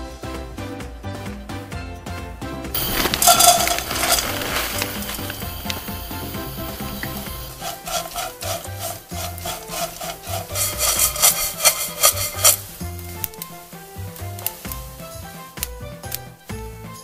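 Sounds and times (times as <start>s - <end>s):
background music: 0.0s - 17.0s
anchovies scraping in a frying pan: 2.8s - 15.6s.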